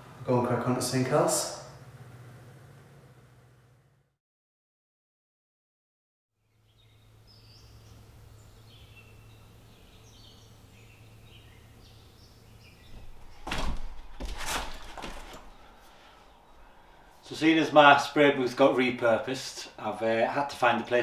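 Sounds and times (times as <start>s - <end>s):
loud knocks: 12.9s - 15.5s.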